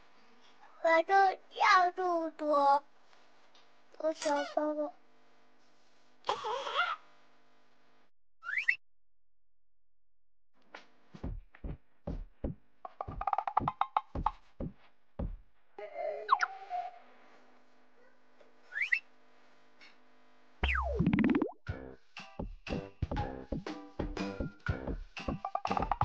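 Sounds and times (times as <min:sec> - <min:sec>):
falling slide whistle: 0:08.4 - 0:08.8, 0:18.7 - 0:19.0
low thumps: 0:11.2 - 0:15.5
bouncy cartoon notes: 0:12.9 - 0:14.4, 0:20.6 - 0:21.6, 0:22.4 - 0:26.0.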